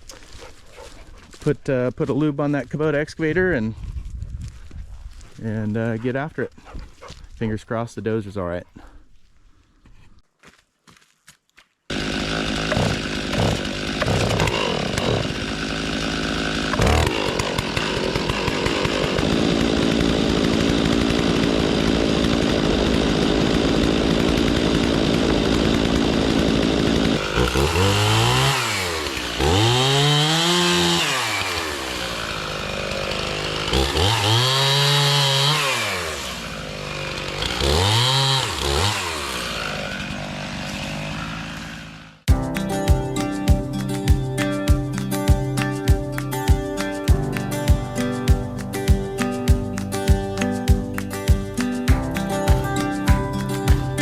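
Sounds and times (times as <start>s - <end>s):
chainsaw revving: 11.9s - 42.3s.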